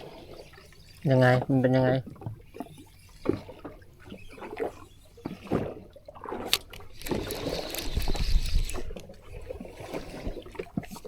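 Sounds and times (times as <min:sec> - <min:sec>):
sea water sloshing around boat: 0:00.0 - 0:11.0.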